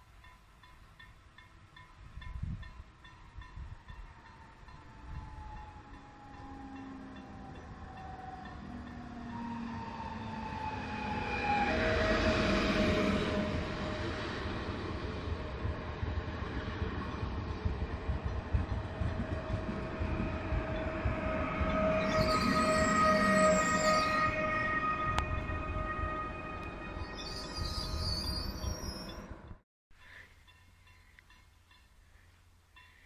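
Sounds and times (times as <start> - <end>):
multi-tone train whine: 0.0 - 33.0
train wheels rumbling and clicking: 13.8 - 24.4.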